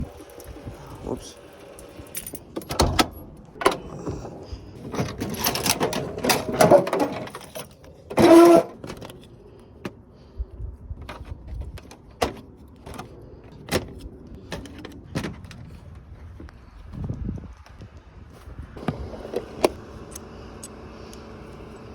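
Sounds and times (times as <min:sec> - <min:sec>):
tools and metal parts clicking: 0:00.0 - 0:04.1, 0:04.7 - 0:09.4.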